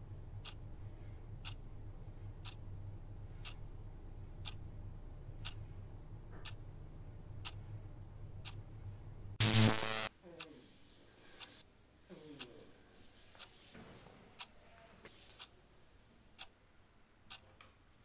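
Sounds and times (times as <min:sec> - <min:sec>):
low steady hum: 0:00.0 - 0:13.2
clock ticking: 0:00.2 - 0:05.7, 0:06.3 - 0:07.7, 0:08.3 - 0:08.7, 0:16.4 - 0:16.6
harsh buzz: 0:09.4 - 0:10.1.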